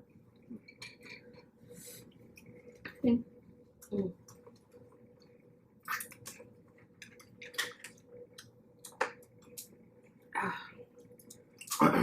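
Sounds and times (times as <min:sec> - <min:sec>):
faint steady hum: 0:00.0 - 0:12.0
crab shell cracking: 0:05.9 - 0:09.8.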